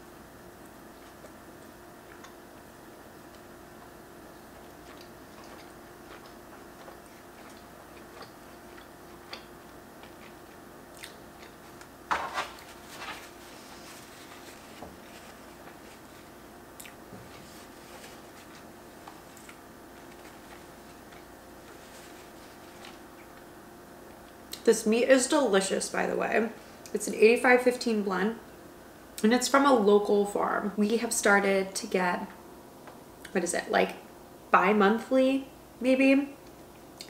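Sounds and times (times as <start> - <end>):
faint steady hum: 0.0 - 37.0
chewing with wet mouth clicks: 0.6 - 2.4, 3.2 - 11.9, 16.8 - 17.0, 19.3 - 19.6.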